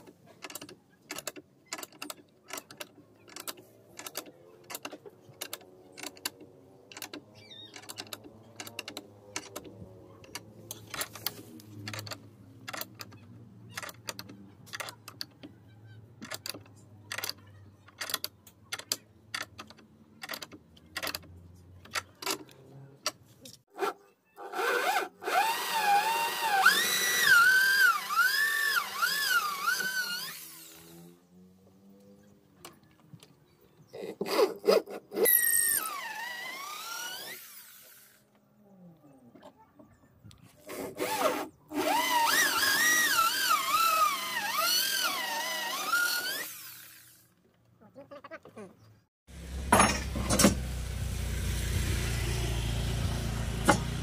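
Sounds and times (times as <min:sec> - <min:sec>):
power tool running: 0:24.5 - 0:31.2, 0:35.2 - 0:38.2, 0:41.0 - 0:47.4.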